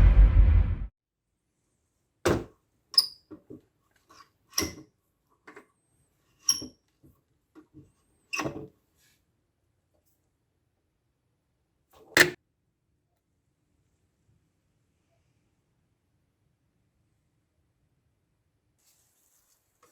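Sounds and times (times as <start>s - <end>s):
loud whooshing sound effect: 0.0s - 0.9s.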